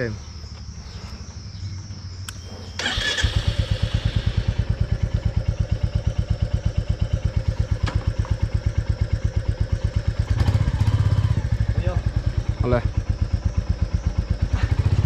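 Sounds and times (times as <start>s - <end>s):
motorcycle engine idling: 1.8s - 15.0s.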